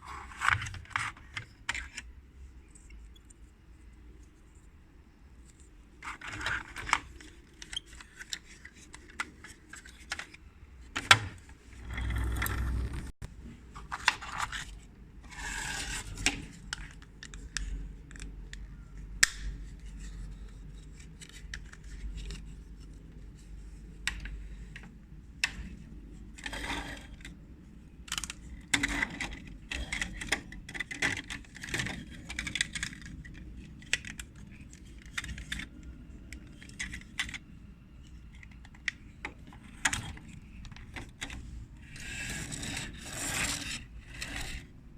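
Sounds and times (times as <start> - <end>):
clicks and knocks of small parts: 28.1 - 41.4.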